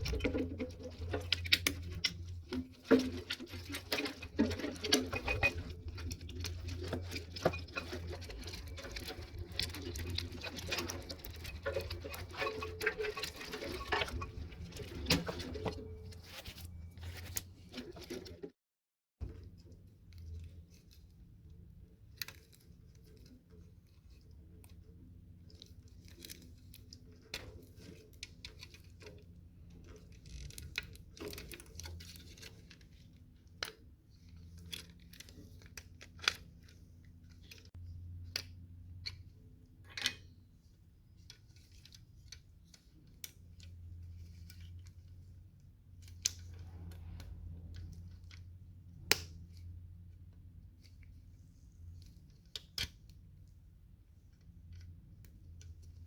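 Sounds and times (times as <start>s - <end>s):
hand tools clicking and scraping: 0.0s - 18.4s.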